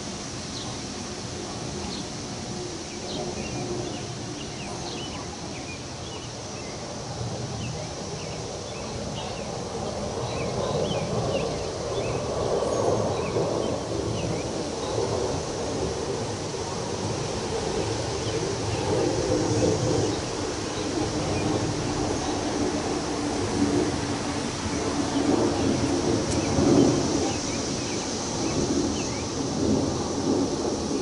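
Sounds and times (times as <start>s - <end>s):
wind rustling tree leaves: 0.0s - 31.0s
small birds chirping: 0.5s - 1.0s, 1.6s - 2.2s, 2.8s - 6.9s, 7.6s - 15.6s, 24.6s - 29.5s.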